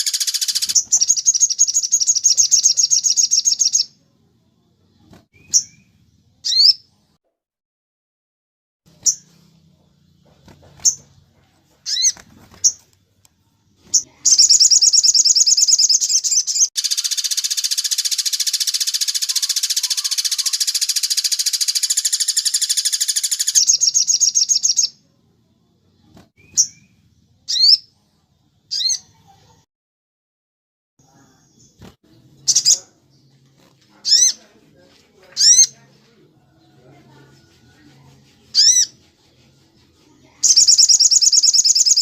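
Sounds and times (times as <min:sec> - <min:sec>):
songbird rattling trill: 0:00.0 - 0:03.9, 0:13.9 - 0:24.9, 0:38.5 - 0:38.9, 0:40.4 - 0:42.0
songbird chirps: 0:00.0 - 0:07.2, 0:08.9 - 0:29.6, 0:31.0 - 0:42.0.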